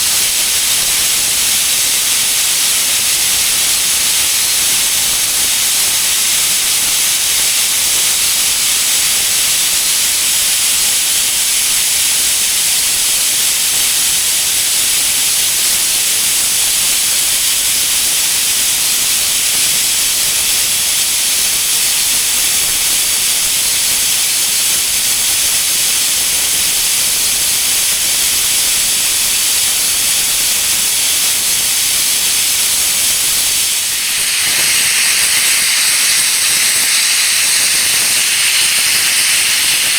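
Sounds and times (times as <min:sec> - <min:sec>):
steam locomotive hissing: 0:00.0 - 0:39.9.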